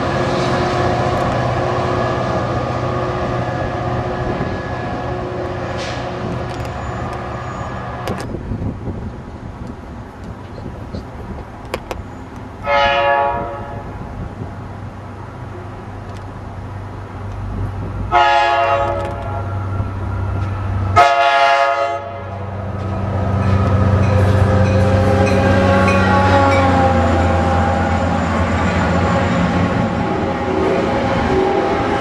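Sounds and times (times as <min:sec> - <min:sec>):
passenger train rumbling: 0:00.0 - 0:32.0
train horn blast: 0:12.6 - 0:14.0, 0:18.1 - 0:19.8, 0:20.9 - 0:22.4, 0:24.0 - 0:28.2.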